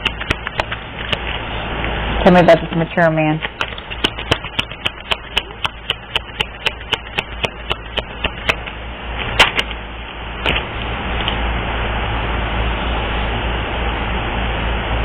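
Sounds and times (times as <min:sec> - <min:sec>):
sharp clicks: 0:00.0 - 0:01.4, 0:03.4 - 0:09.8.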